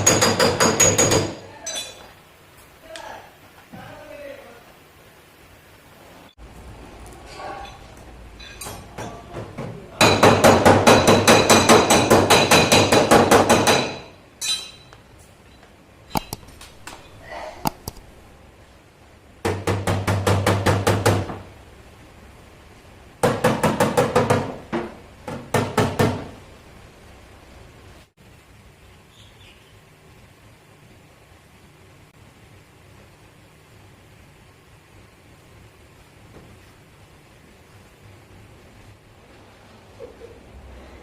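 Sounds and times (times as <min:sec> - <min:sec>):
hammer tapping sheet metal: 0:00.0 - 0:01.4, 0:08.6 - 0:14.9.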